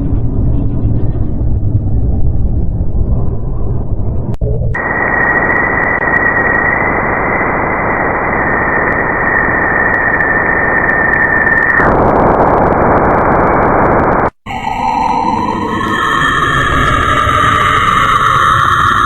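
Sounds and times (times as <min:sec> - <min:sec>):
high whistling tone: 0:14.4 - 0:19.0.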